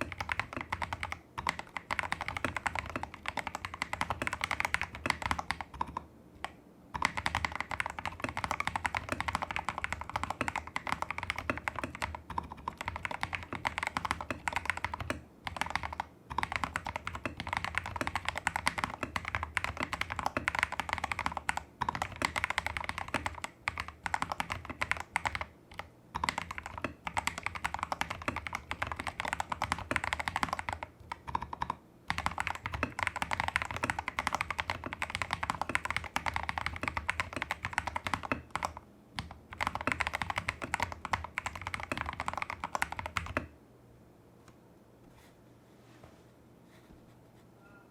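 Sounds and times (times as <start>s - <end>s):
mechanical keyboard typing: 0.0s - 43.5s.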